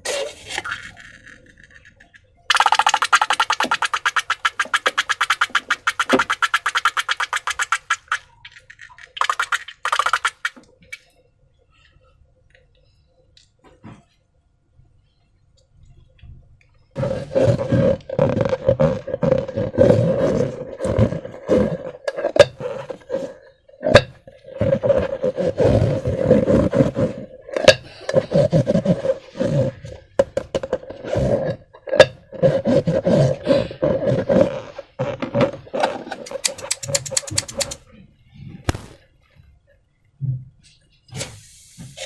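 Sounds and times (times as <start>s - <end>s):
rubbing noise: 0.0s - 1.8s, 2.5s - 8.2s, 17.0s - 23.4s, 24.5s - 29.9s, 32.4s - 37.8s, 38.5s - 39.0s.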